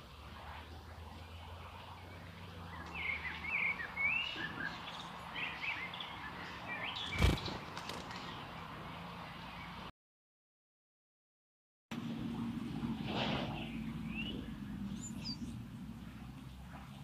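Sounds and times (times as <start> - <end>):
small birds twittering: 1.0 - 9.9, 13.5 - 16.6.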